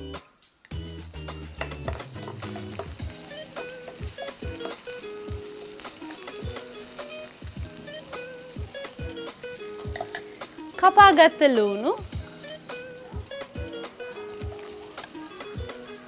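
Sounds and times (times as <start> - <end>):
spices sizzling in hot oil: 0.9 - 16.0.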